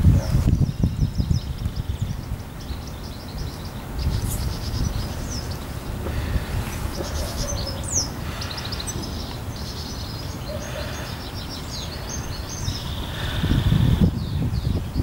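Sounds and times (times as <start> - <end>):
garden birds chirping and singing: 0.0 - 15.0.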